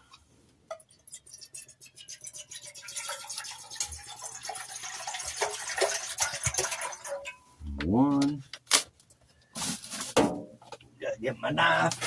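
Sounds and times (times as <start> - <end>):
water pouring into pot: 0.9 - 7.3.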